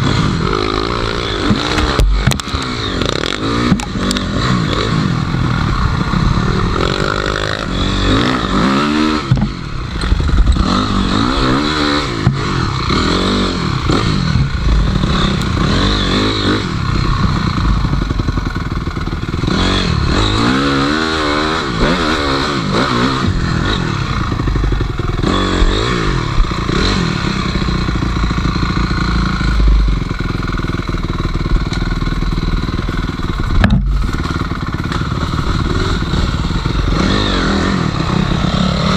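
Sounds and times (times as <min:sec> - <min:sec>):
motorcycle engine revving: 0:00.0 - 0:38.9
knocks and clatter: 0:01.4 - 0:04.3, 0:09.2 - 0:10.7, 0:31.4 - 0:35.6.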